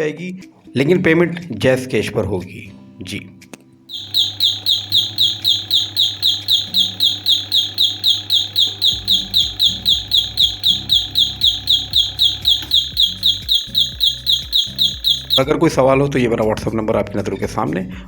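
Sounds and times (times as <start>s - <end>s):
rapid electronic chirping beeps: 3.9s - 15.5s.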